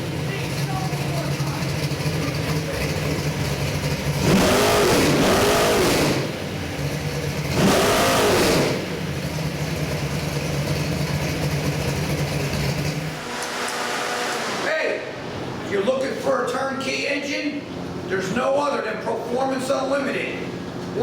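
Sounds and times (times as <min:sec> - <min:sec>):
engine revving: 0:00.0 - 0:15.4
engine idling: 0:00.0 - 0:18.3.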